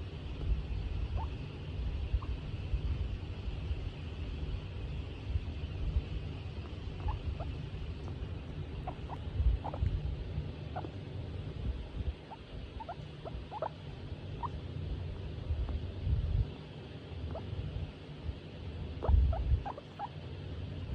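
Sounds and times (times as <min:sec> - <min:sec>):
low steady rumble: 0:00.0 - 0:20.9
guinea pig squeaking: 0:00.4 - 0:02.8, 0:06.5 - 0:11.0, 0:12.0 - 0:15.1, 0:17.2 - 0:17.6, 0:19.0 - 0:20.2.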